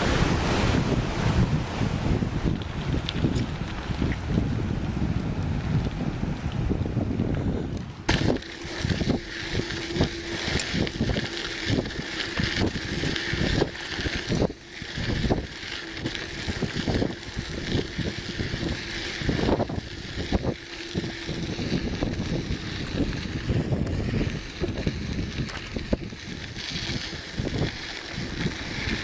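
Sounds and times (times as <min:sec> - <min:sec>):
wind buffeting microphone: 0:00.0 - 0:29.0
bicycle knocks and rattles: 0:02.0 - 0:04.6, 0:05.2 - 0:29.0
faint steady hum: 0:03.8 - 0:29.0.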